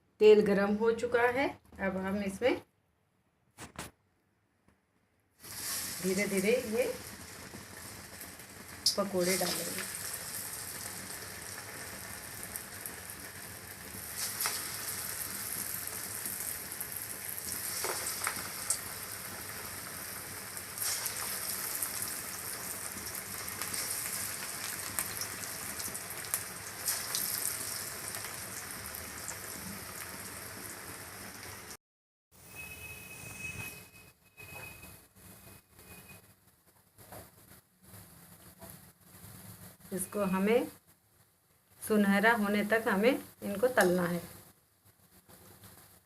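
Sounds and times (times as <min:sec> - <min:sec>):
food deep-frying in hot oil: 0:05.4 - 0:31.8
oil popping and crackling: 0:05.4 - 0:31.8.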